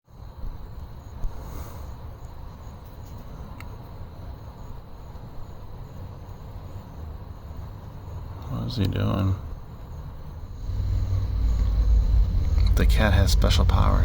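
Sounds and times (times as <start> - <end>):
crickets trilling: 0.1 - 14.0
low steady rumble: 9.6 - 14.0.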